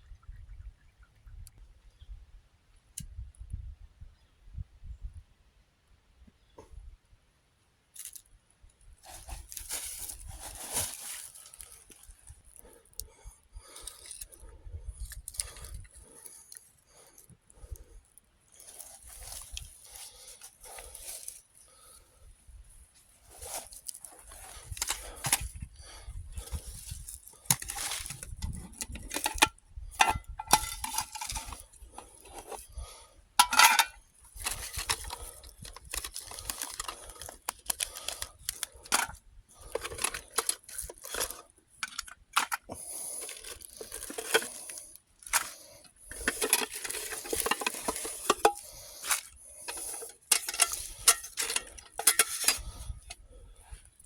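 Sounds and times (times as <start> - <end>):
metal mess kit clinking: 28.8 - 31.6, 33.4 - 37.0, 38.8 - 52.8.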